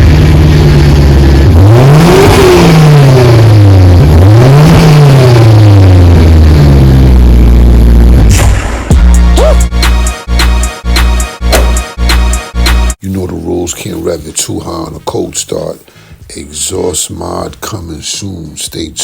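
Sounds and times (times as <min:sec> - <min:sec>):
car engine idling and revving: 0:00.0 - 0:09.2.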